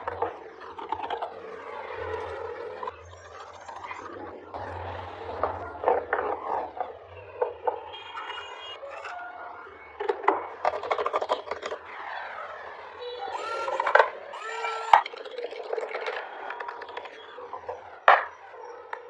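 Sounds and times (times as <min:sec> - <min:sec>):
short squeaks: 0:13.3 - 0:15.3
sharp clicks: 0:13.4 - 0:17.2.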